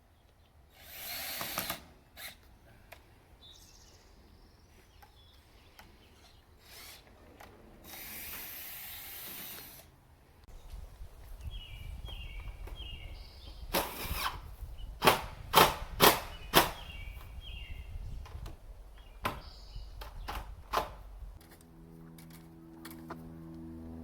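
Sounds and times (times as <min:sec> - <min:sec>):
low steady hum: 0:21.0 - 0:24.0.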